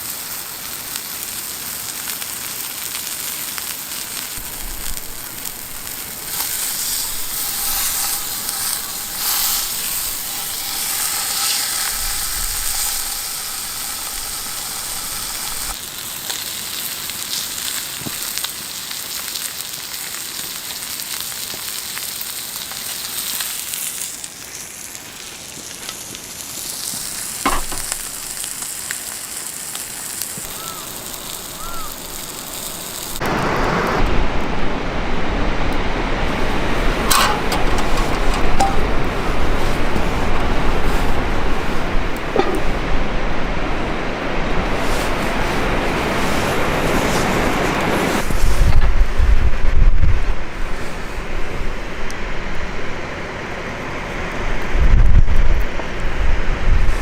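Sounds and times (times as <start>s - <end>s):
food sizzling in a hot pan: 0.0s - 34.0s, 36.3s - 42.9s.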